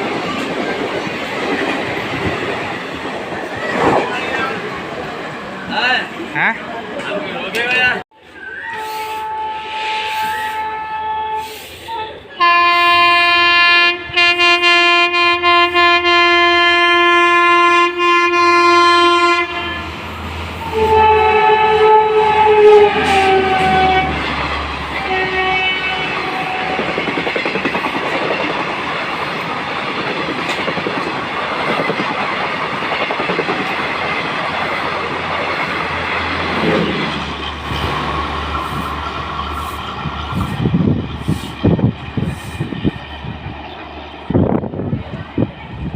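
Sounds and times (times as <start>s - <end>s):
train rushing past with wheel clatter: 0.0s - 45.9s
train horn blasting: 8.7s - 27.2s.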